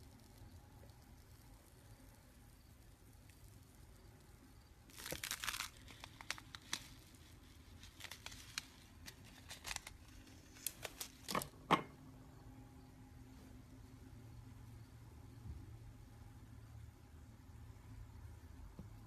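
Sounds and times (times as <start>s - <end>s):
slime crackling and popping: 4.8s - 11.3s.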